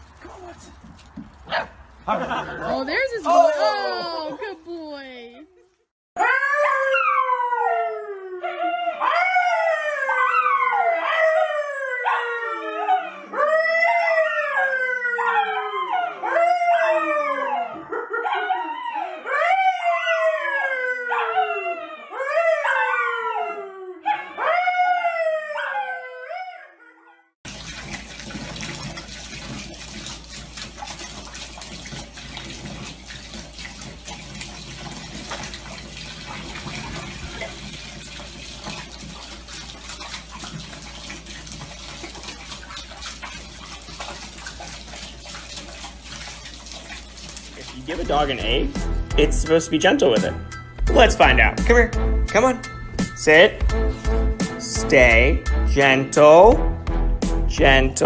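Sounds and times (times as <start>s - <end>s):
dog howling: 6.2s - 27.2s
water running into bathtub: 27.4s - 53.6s.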